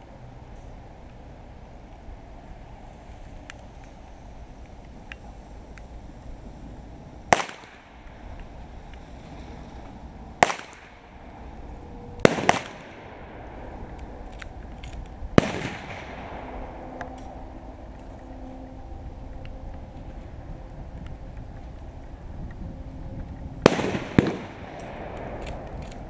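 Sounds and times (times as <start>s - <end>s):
echoing gunshots: 7.3s - 8.0s, 10.4s - 11.2s, 12.2s - 13.9s, 15.4s - 16.9s, 23.6s - 25.9s.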